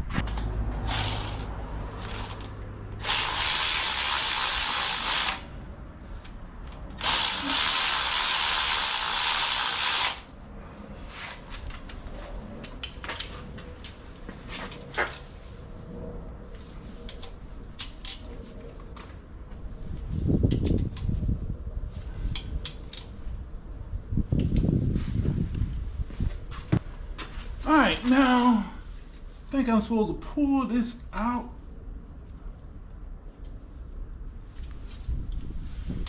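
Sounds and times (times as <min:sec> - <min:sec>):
power tool hissing: 0:03.0 - 0:05.5, 0:07.0 - 0:10.2.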